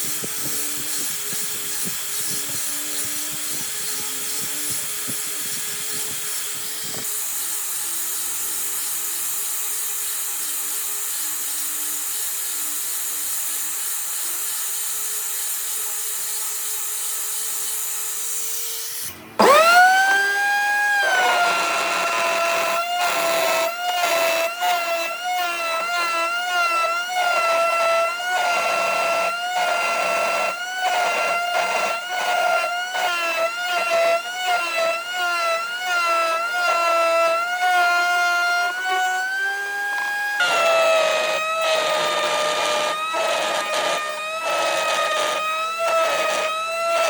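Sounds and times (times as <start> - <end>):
motor spinning up with whine: 0.0 - 8.5, 19.0 - 47.0
power tool grinding wood: 0.0 - 47.0.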